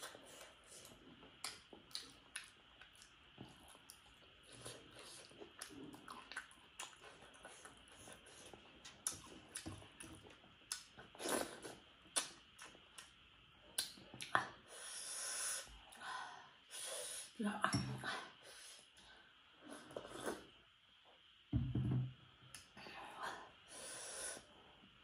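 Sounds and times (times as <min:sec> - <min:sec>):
wet chewing: 0:00.4 - 0:13.1
lip smacks and mouth clicks: 0:13.8 - 0:14.4.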